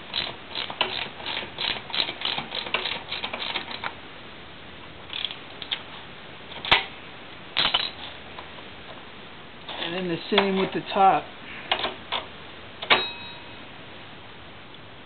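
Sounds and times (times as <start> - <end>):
ratchet wrench clicking: 0.1 - 3.9, 5.1 - 5.8.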